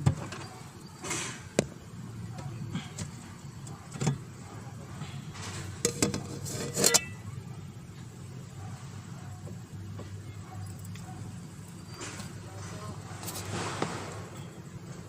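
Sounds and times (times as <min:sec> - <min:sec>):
parts clicking knocking and scraping: 0:05.0 - 0:07.2.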